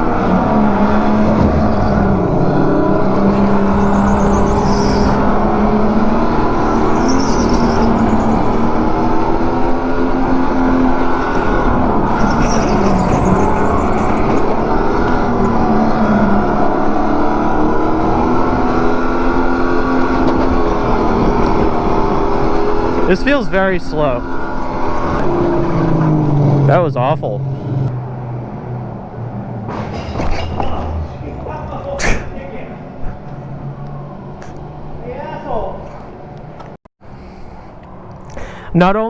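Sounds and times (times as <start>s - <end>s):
go-kart engine running: 0.0s - 30.0s.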